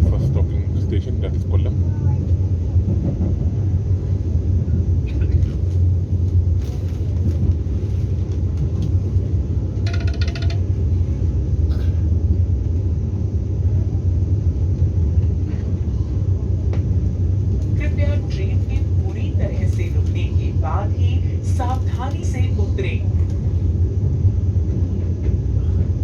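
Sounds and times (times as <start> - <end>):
train rumble from inside coach: 0.0 - 26.0
light clicks and rattles: 9.8 - 10.6.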